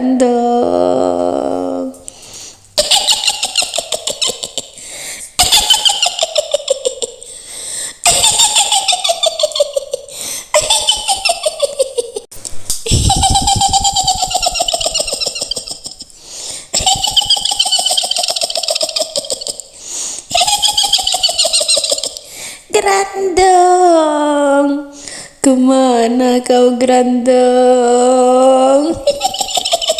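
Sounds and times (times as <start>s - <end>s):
person calling out: 0.0s - 2.0s
woman's shrill witch cackle: 2.8s - 4.8s, 5.4s - 7.2s, 8.0s - 12.3s, 12.9s - 16.1s, 16.7s - 19.7s, 20.3s - 22.3s, 28.8s - 29.9s.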